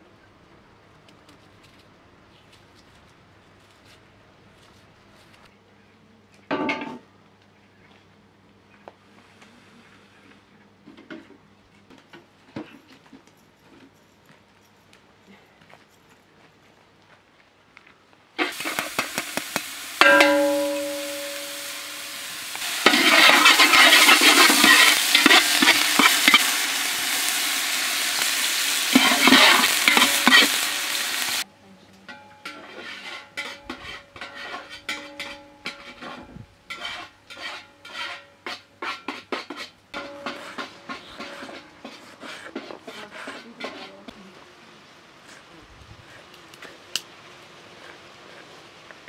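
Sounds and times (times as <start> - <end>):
onion sizzling in oil: 18.4 - 31.5, 32.4 - 43.9.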